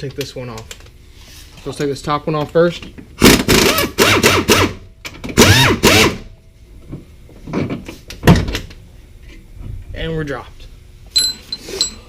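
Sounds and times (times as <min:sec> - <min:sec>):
power tool spinning bolt: 0:03.2 - 0:04.8, 0:05.4 - 0:06.2.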